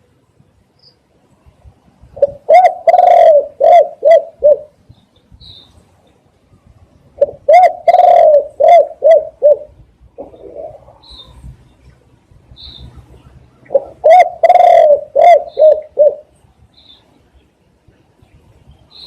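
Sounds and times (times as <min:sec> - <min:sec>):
dove cooing loudly: 0:02.2 - 0:04.8, 0:07.2 - 0:11.4, 0:13.7 - 0:16.3.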